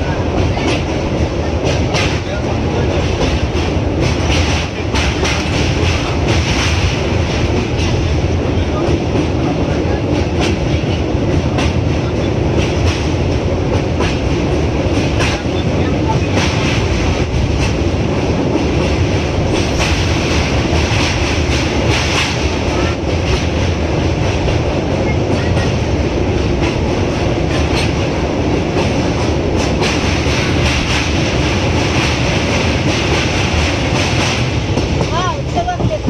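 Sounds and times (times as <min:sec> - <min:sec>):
train rumbling: 0:00.0 - 0:36.0.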